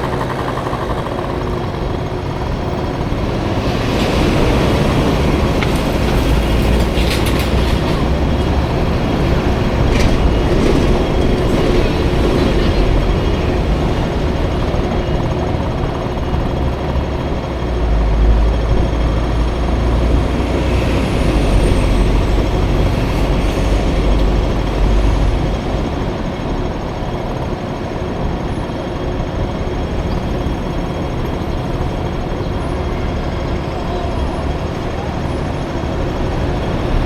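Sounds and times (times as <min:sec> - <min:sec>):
heavy low rumble: 0:00.0 - 0:26.9
road and traffic noise: 0:00.0 - 0:37.0
scooter engine running: 0:00.0 - 0:37.0.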